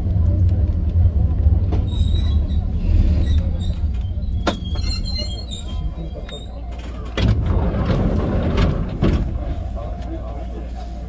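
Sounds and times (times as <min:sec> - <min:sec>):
electric train rumble: 0:00.0 - 0:11.0
train wheel squeal: 0:01.7 - 0:06.7.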